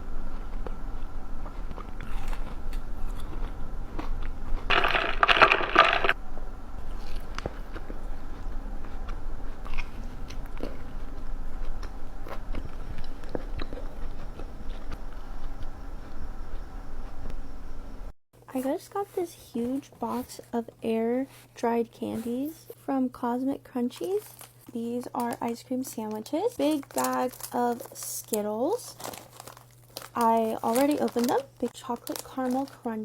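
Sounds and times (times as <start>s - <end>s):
chewing with small crunches: 0.2s - 6.2s, 6.8s - 17.4s, 24.0s - 33.0s
loud crunchy bite: 1.7s - 6.2s, 6.8s - 8.2s, 9.6s - 11.0s.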